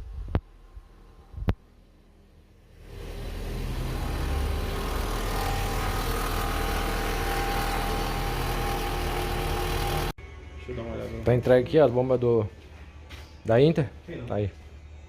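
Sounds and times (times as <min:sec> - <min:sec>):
machinery rumbling: 0:02.9 - 0:10.1.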